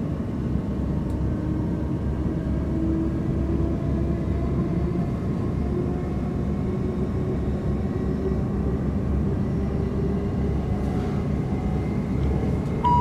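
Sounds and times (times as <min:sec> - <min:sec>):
train interior rumble: 0:09.4 - 0:13.0.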